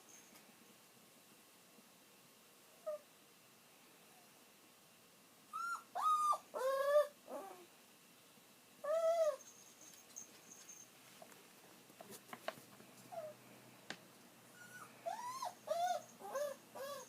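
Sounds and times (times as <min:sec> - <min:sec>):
dog whining: 0:02.8 - 0:03.1, 0:05.5 - 0:07.7, 0:08.8 - 0:09.5, 0:13.1 - 0:13.4, 0:14.5 - 0:17.0.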